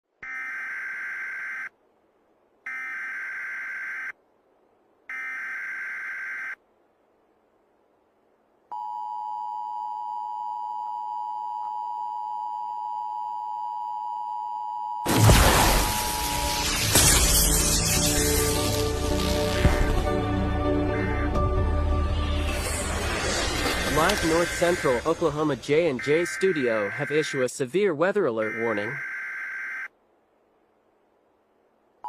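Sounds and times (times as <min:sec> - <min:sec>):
loud sound: 0:15.1 - 0:27.4
data header bursts: 0:15.1 - 0:29.0.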